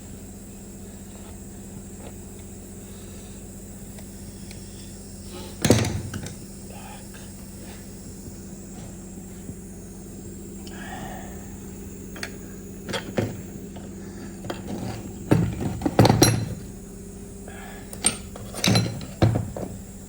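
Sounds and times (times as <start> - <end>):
steady low hum: 0.0 - 20.0
rattle of small knocks: 5.5 - 6.5, 12.1 - 16.8, 17.9 - 19.9.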